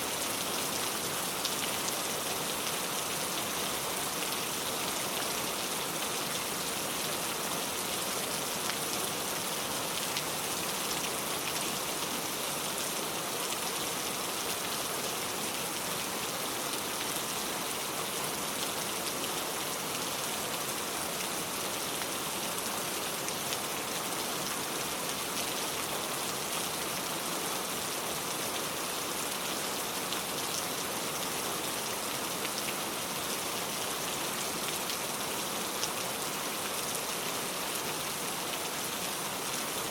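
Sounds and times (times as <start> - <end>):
rain falling on a car: 0.2 - 39.9.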